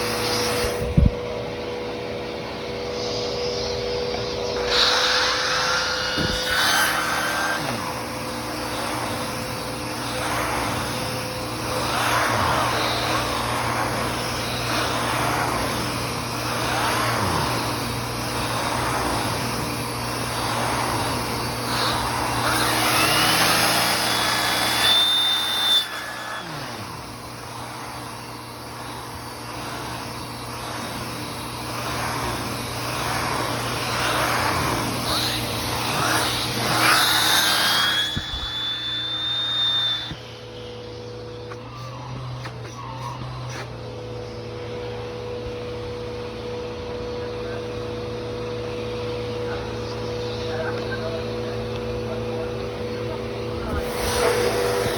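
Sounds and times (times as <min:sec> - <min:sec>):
rising whine: 0:00.0 - 0:30.0, 0:31.7 - 0:54.9
vacuum cleaner running: 0:00.0 - 0:54.9.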